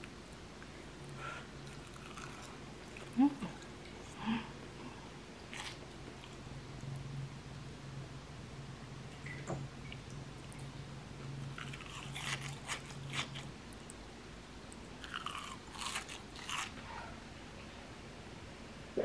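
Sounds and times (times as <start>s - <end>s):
chewing crunchy fried food: 1.6s - 4.0s, 5.5s - 6.5s, 11.4s - 14.0s, 14.8s - 16.9s.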